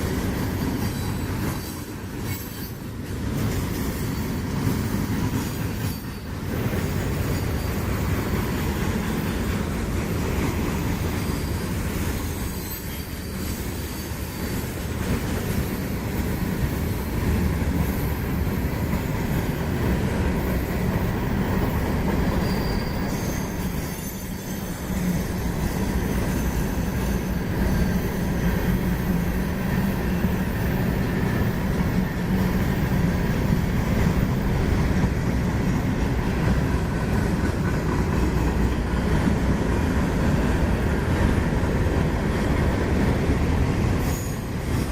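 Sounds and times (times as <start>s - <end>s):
freight train wheels rumbling on rail: 0.0s - 44.9s
high wheel squeals: 0.2s - 3.0s, 3.7s - 9.8s, 10.8s - 16.1s, 20.4s - 36.0s, 43.9s - 44.9s.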